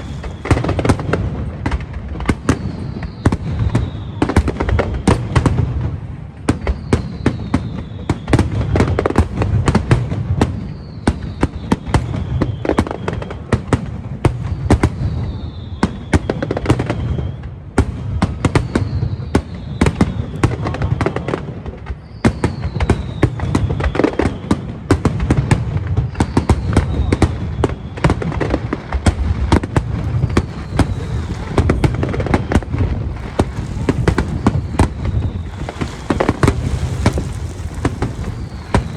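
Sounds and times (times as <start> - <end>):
fireworks bangs and crackles: 0.0 - 7.5, 28.8 - 38.9
deep rumble: 29.7 - 38.9.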